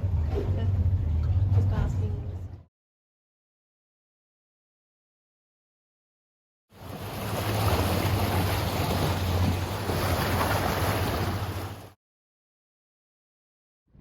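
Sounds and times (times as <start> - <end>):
boat engine drone: 0.0 - 2.7, 6.8 - 11.9
rushing water: 6.8 - 12.0.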